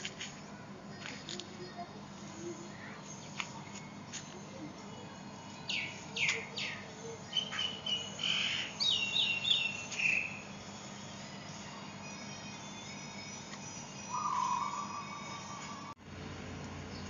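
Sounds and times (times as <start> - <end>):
bird chirps sweeping downward: 14.0 - 16.0.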